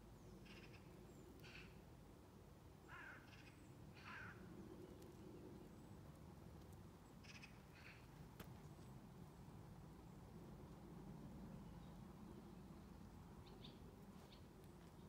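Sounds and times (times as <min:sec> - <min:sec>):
faint short bird calls: 0:00.2 - 0:01.8, 0:02.8 - 0:04.5, 0:07.2 - 0:08.2.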